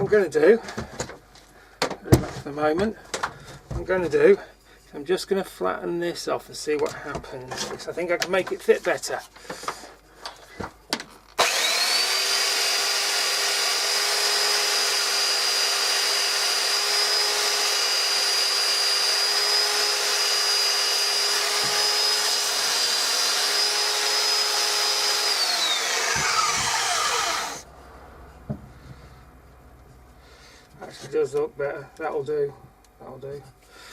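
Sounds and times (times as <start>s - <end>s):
power tool whining and grinding wood: 11.4s - 27.7s.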